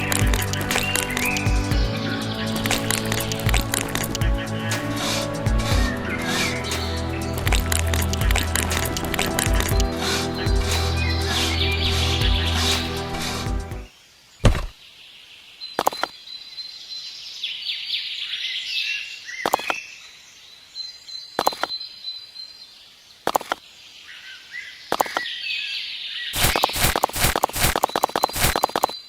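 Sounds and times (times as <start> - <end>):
birds chirping: 0.0 - 17.2.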